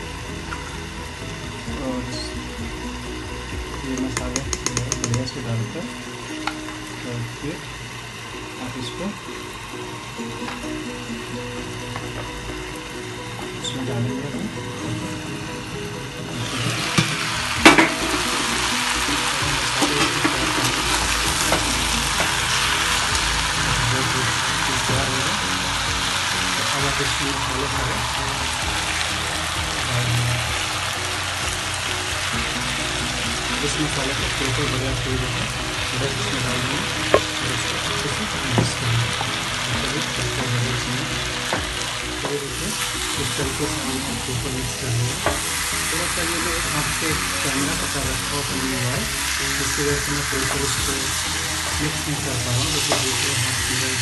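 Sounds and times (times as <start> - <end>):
chicken and onions sizzling in oil: 0.0 - 54.0
metal spatula knocking pan: 4.1 - 5.3.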